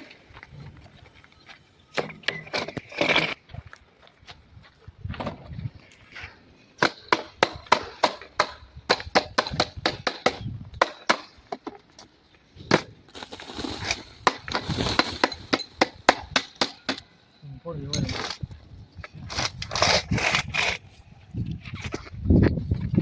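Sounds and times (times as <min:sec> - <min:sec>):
scraping rustling noise: 0:13.1 - 0:15.8.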